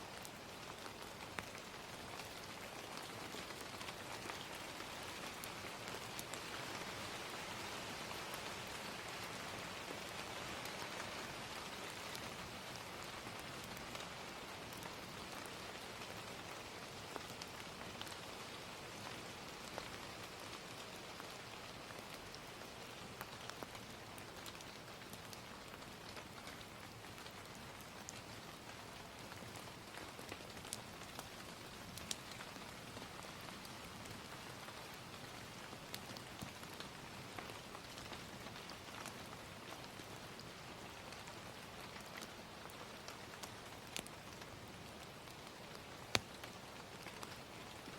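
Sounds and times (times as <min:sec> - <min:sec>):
gentle rain falling: 0:00.0 - 0:47.9
crackling fire pops: 0:45.8 - 0:47.4.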